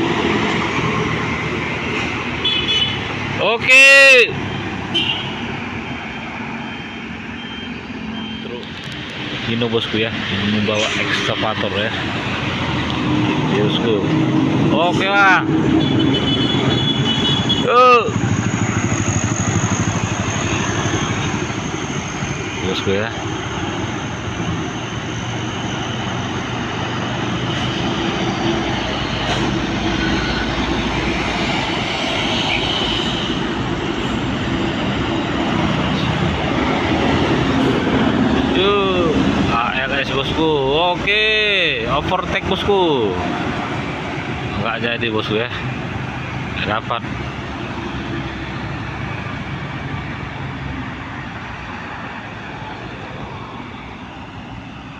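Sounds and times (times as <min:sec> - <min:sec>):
heavy truck engine passing: 0:00.0 - 0:54.9
diesel truck engine under load: 0:18.1 - 0:32.4.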